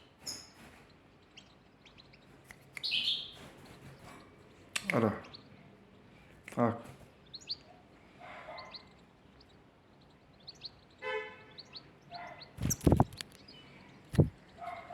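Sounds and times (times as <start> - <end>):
small birds chirping: 0.0 - 14.9
loud thumps: 12.6 - 13.2, 14.1 - 14.4.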